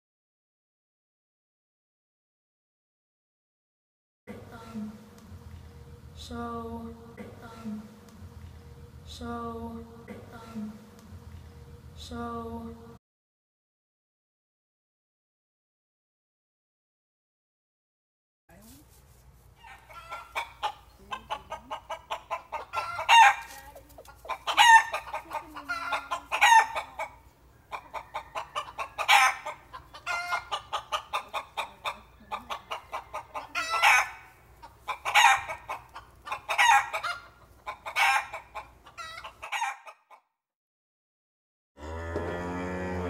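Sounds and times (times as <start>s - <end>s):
chickens clucking: 19.6s - 40.2s
loud chicken calls: 19.6s - 40.2s.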